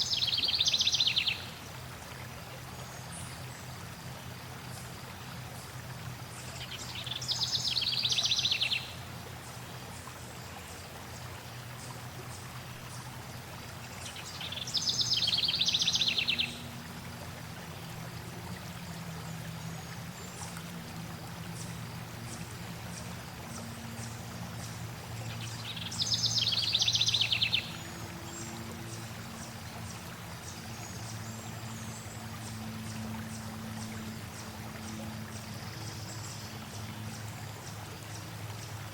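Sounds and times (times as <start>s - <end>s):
stream water running: 0.0s - 38.9s
songbird trilling: 25.6s - 27.7s.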